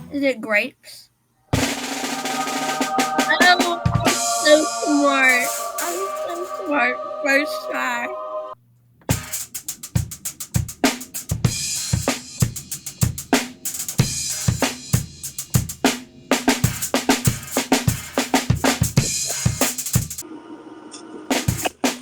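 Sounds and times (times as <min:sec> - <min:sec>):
crashing cymbals: 0:01.6 - 0:08.6.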